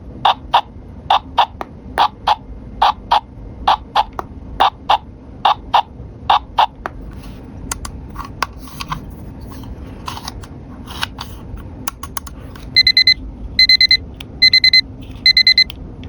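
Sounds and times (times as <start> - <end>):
rapid high electronic beeps: 0.3 - 6.8, 12.8 - 15.7.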